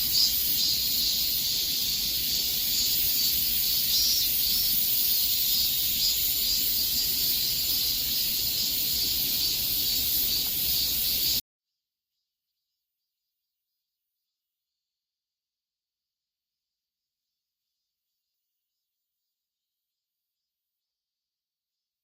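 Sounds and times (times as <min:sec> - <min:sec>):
cicadas singing: 0:00.0 - 0:11.4.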